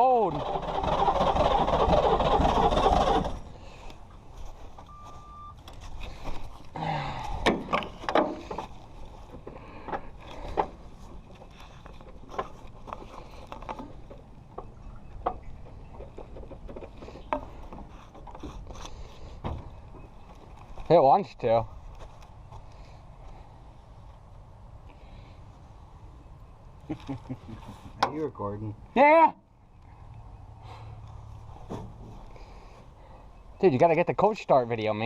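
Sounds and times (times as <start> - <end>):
short beep: 4.9 - 5.6.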